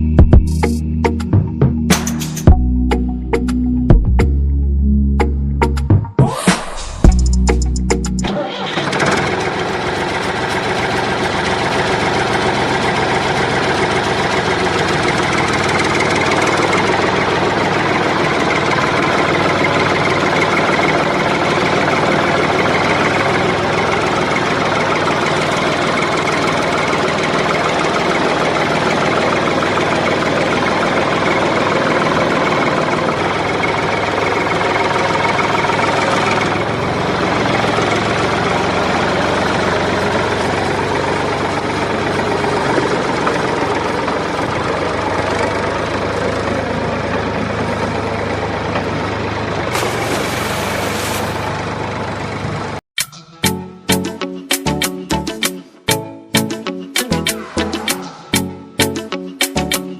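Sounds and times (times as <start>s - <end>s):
small water pump motor whirring: 49.7s - 51.7s.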